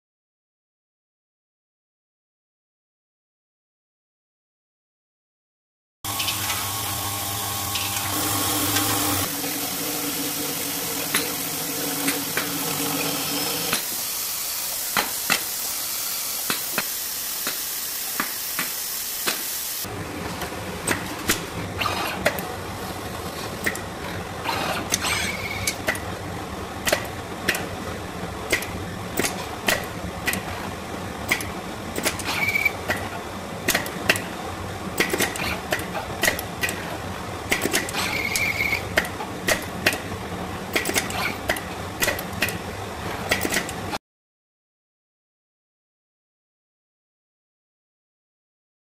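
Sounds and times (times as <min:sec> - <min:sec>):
machine hiss with low hum: 0:06.1 - 0:43.2
sharp mechanical clicks and knocks: 0:26.8 - 0:27.7, 0:28.5 - 0:30.6, 0:31.3 - 0:34.3, 0:35.0 - 0:36.9, 0:37.5 - 0:40.1, 0:40.7 - 0:42.6, 0:43.2 - 0:43.9.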